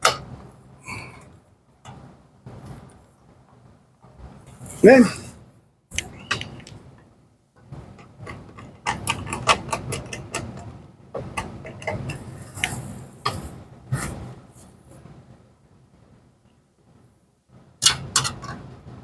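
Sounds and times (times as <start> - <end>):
hand tools clicking and tapping: 8.3 - 10.8.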